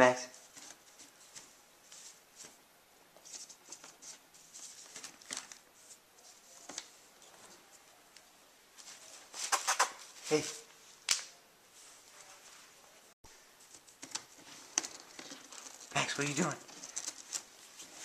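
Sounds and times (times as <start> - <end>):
puppy scratching and rustling: 13.6 - 18.0.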